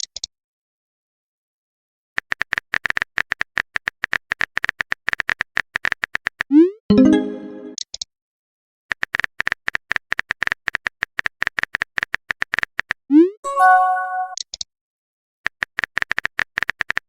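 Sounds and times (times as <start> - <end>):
chime-like alert tone: 6.9 - 7.8, 13.5 - 14.4.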